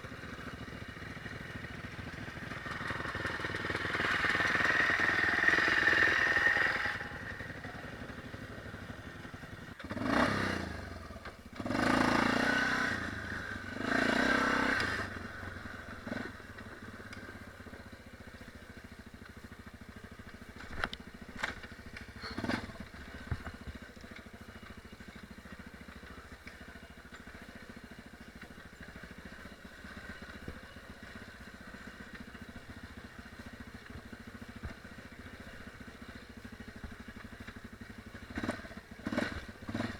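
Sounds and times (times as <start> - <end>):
dirt bike engine revving: 0.2 - 17.7, 20.4 - 31.6, 37.6 - 39.9.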